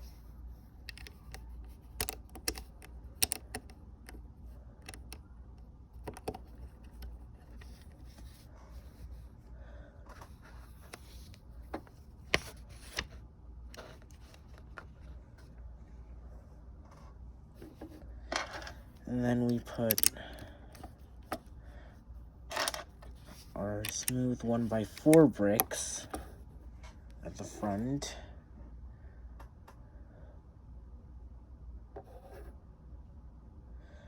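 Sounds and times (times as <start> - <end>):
low steady hum: 0.0 - 34.0
plastic bricks clicking together: 0.9 - 3.7, 19.8 - 20.2.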